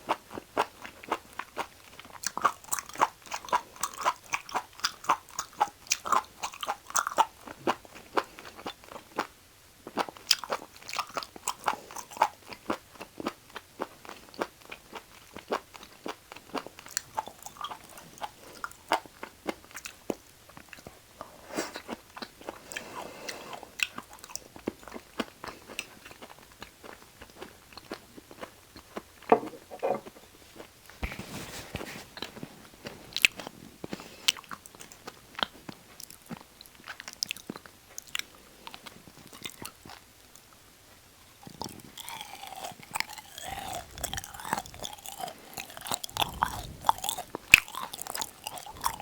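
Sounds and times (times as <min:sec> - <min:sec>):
person chewing wet food: 0:00.0 - 0:31.2, 0:31.8 - 0:49.0
crunchy bites: 0:41.4 - 0:49.0.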